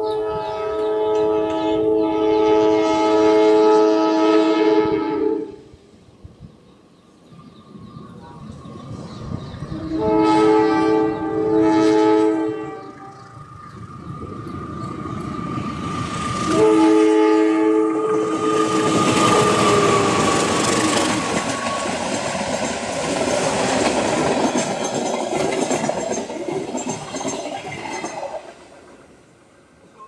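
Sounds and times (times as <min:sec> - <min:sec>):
locomotive horn blast: 0:00.0 - 0:05.6, 0:09.7 - 0:13.4, 0:16.4 - 0:20.5
train wheels clattering over rail joints: 0:19.0 - 0:29.5.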